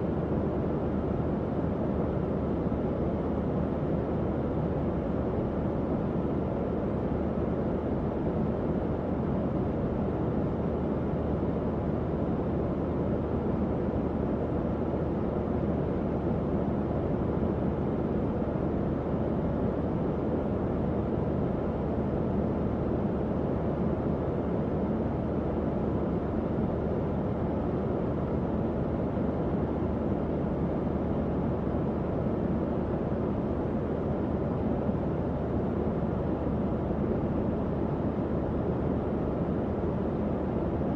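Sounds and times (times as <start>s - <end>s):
fan whoosh of moving air: 0.0s - 40.9s.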